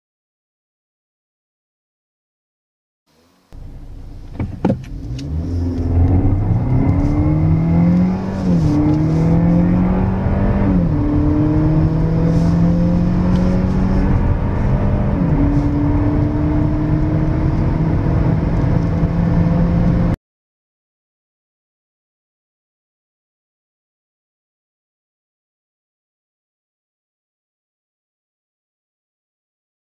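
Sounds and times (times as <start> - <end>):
car engine accelerating: 3.2 - 20.2.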